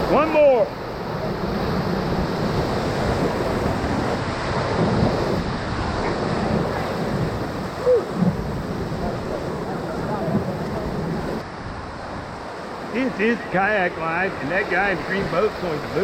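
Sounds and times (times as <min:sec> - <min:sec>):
wind buffeting microphone: 0:00.0 - 0:12.9
rushing whitewater roar: 0:00.0 - 0:16.0
person shouting: 0:07.8 - 0:08.2.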